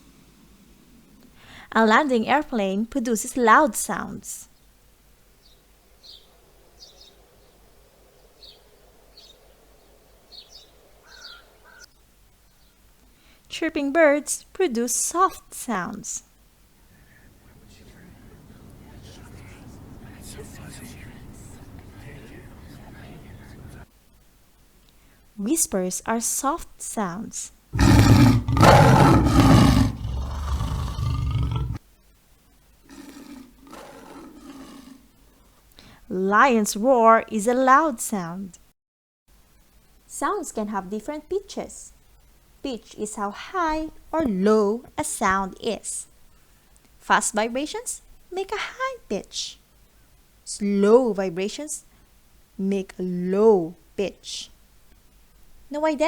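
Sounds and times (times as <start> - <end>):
faint steady hum: 0.0 - 38.7, 39.3 - 56.0
small birds chirping: 4.4 - 13.3, 16.9 - 23.8, 27.8 - 31.8
lion roaring: 27.8 - 31.8, 32.9 - 35.1.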